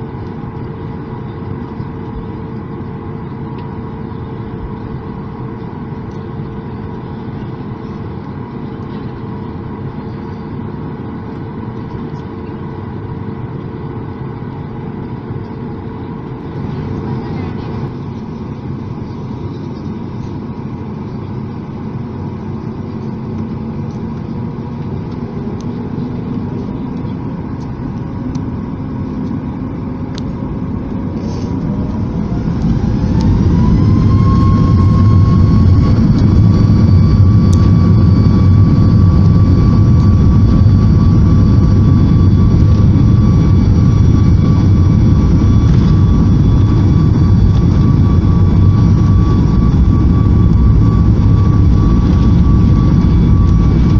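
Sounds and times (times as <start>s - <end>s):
rising engine whine: 0.0s - 53.9s
jet engines spooling up: 15.0s - 53.9s.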